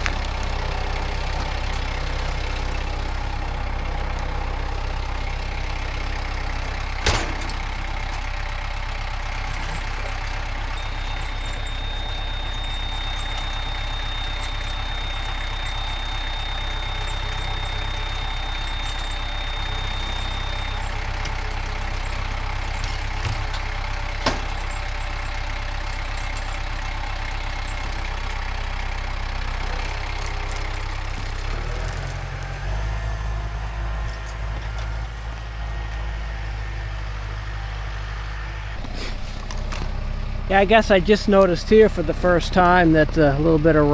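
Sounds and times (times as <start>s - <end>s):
machine engine idling: 0.0s - 43.9s
thin high tone: 9.5s - 28.4s.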